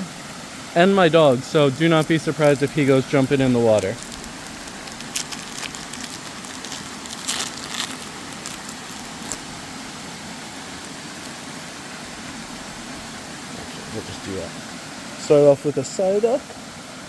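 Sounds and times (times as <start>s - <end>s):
waterfall rushing: 0.0s - 17.0s
card packaging crinkling: 1.8s - 13.0s.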